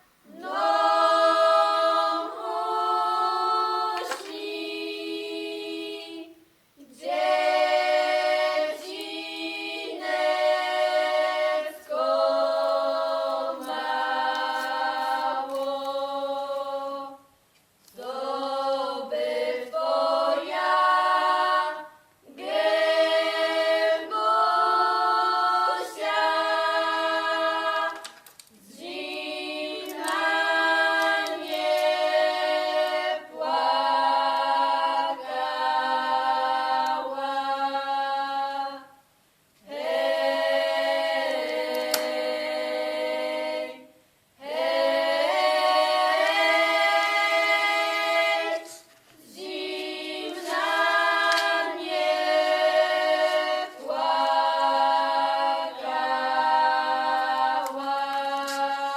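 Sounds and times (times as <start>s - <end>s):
a cappella choir singing: 0.0s - 58.9s.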